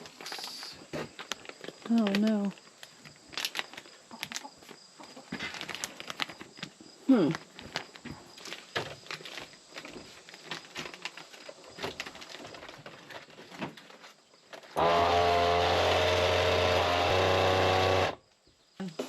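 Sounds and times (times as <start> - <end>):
vacuum sealer motor hum: 14.8 - 18.2.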